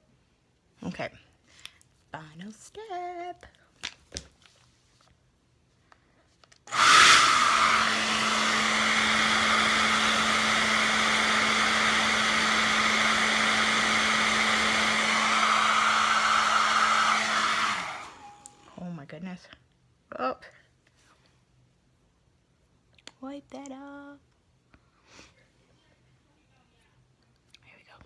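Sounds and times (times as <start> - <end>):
hair dryer running: 6.7 - 18.8.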